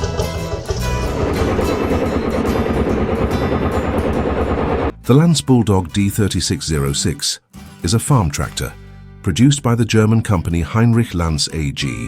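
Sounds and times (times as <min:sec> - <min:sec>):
diesel engine running: 0:00.0 - 0:05.0
background music: 0:00.0 - 0:12.0.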